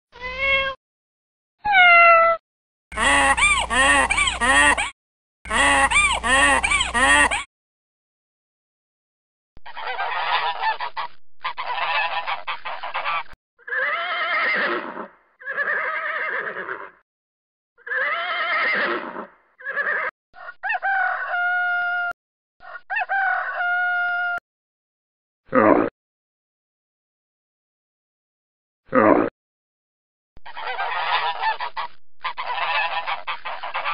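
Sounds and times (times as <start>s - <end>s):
waterfowl honking and quacking: 9.6s - 13.4s, 20.4s - 21.9s, 22.6s - 24.4s, 30.4s - 33.9s.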